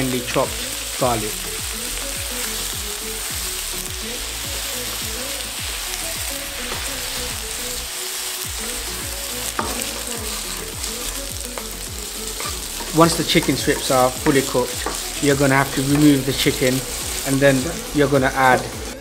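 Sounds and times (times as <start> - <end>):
food sizzling in oil: 0.0 - 19.0
wooden spatula stirring in wok: 6.2 - 19.0.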